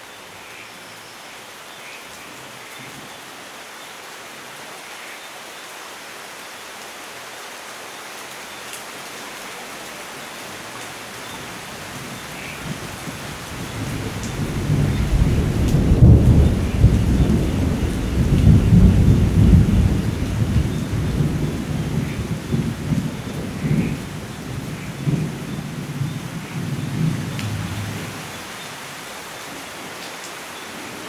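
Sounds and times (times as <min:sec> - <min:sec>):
steady rain: 0:00.0 - 0:31.0
rolling thunder: 0:12.6 - 0:28.2.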